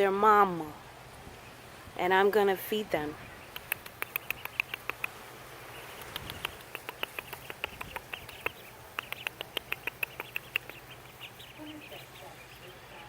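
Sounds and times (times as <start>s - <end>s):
ducklings peeping: 0.2s - 13.0s.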